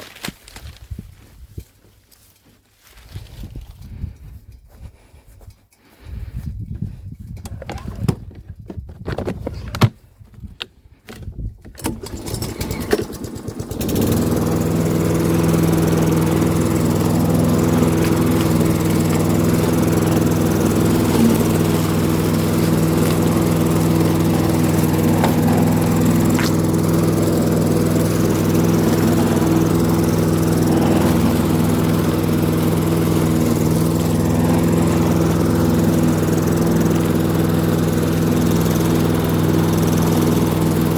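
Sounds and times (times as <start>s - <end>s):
small petrol engine running: 11.8s - 40.9s.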